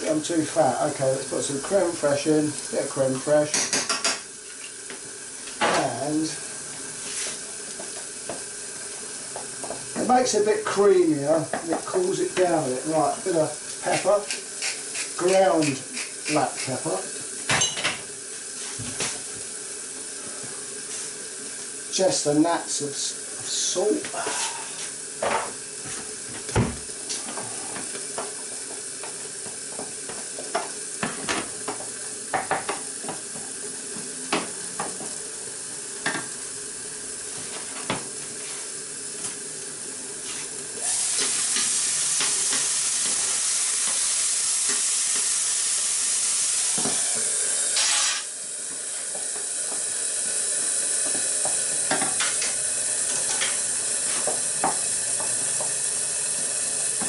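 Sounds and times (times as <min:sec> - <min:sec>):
loud cooking hiss: 0:00.0 - 0:57.0
utensil stirring and tapping saucepan: 0:03.1 - 0:04.7, 0:13.8 - 0:16.9, 0:51.0 - 0:55.8.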